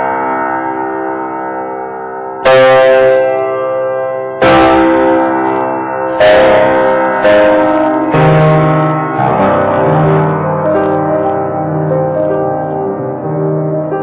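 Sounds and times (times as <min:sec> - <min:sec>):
guitar strumming slow chords: 0:04.4 - 0:14.0.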